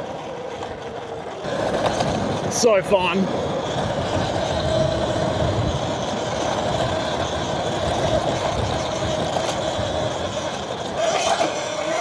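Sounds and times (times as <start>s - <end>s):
electric dirt bike motor whine: 0.0s - 12.0s.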